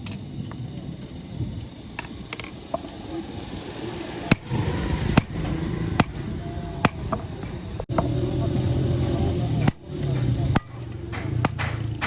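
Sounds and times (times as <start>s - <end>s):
hammer striking metal: 4.3s - 8.1s, 9.6s - 12.0s.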